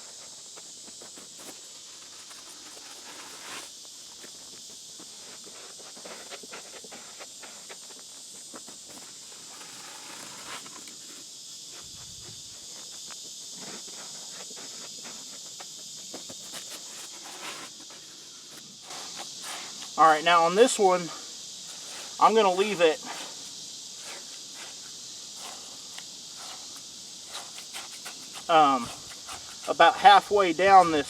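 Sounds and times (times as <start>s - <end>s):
insects chorus: 0.0s - 31.0s
clicks and scrapes on concrete: 25.4s - 30.4s.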